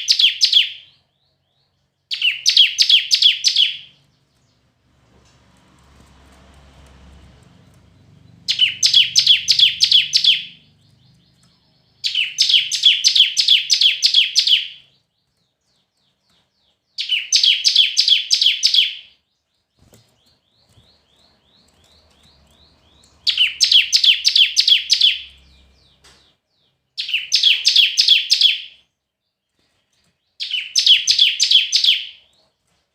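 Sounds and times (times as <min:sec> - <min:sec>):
bird chipping song: 0:00.0 - 0:05.2, 0:06.9 - 0:32.9.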